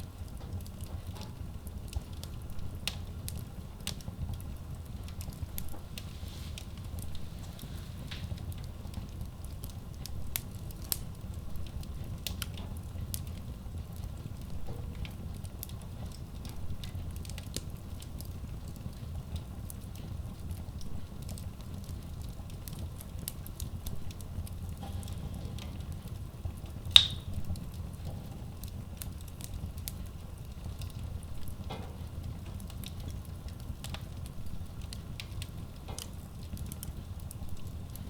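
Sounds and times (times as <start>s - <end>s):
rumble of fire flames: 0.0s - 38.0s
wood crackling: 0.0s - 38.0s
loud wood pop: 26.9s - 27.3s.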